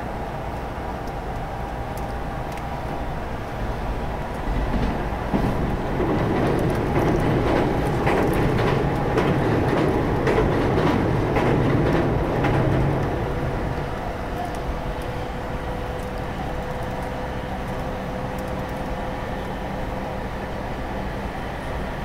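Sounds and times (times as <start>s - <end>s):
steady train hum: 0.0s - 22.0s
train rumble on bridge: 0.0s - 22.0s
wheel clacks: 4.4s - 14.6s.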